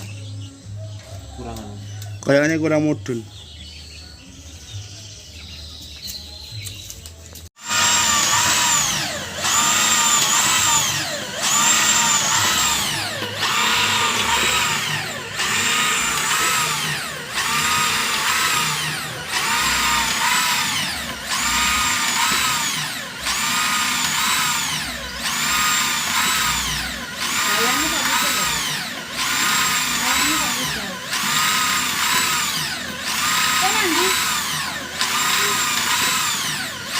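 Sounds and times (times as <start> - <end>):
electric drill motor whine: 7.6 - 36.9.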